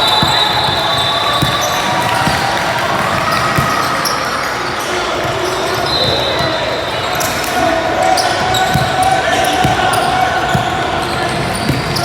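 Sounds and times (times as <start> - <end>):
basketball bouncing on gym floor: 0.0 - 4.1, 8.4 - 12.0
crowd chatter in echoing hall: 0.0 - 12.0.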